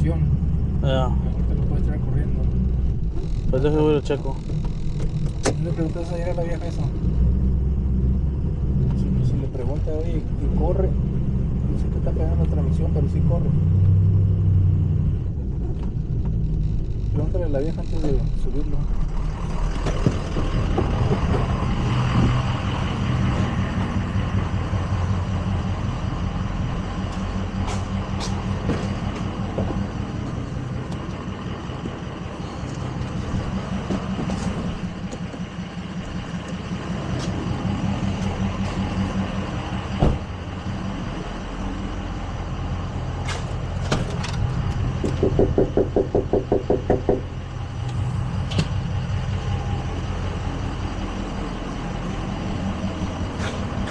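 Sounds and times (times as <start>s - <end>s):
tow truck engine running: 0.0s - 53.9s
sharp clicks and knocks: 4.2s - 6.4s, 43.3s - 48.8s.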